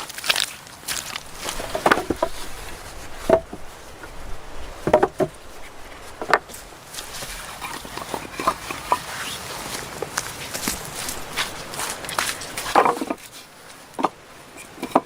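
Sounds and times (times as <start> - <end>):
wooden knocks and cracks: 0.0 - 2.4, 4.8 - 5.4, 10.0 - 13.3.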